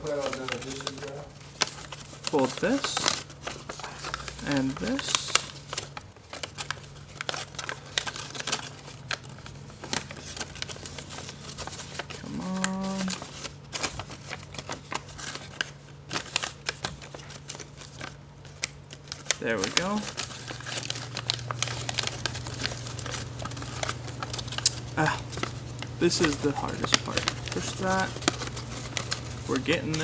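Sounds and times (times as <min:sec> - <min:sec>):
paper crinkling and creasing: 0:00.0 - 0:30.0
person humming a note: 0:12.2 - 0:13.2
steady low hum: 0:19.3 - 0:30.0.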